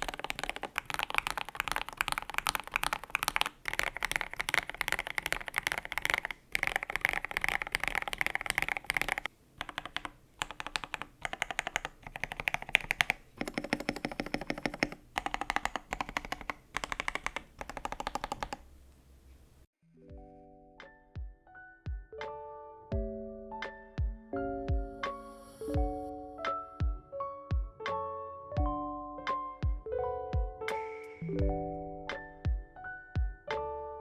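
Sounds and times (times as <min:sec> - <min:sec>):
mechanical keyboard typing: 0:00.0 - 0:18.8
soft piano music: 0:19.8 - 0:34.0.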